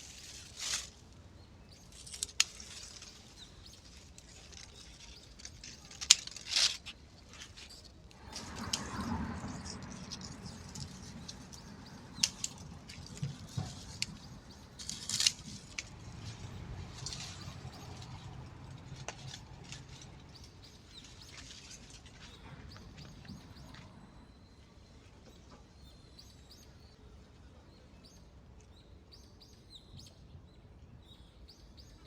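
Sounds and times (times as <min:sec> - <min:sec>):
small birds chirping: 0:00.0 - 0:32.0
clicks and rustles: 0:01.7 - 0:23.8.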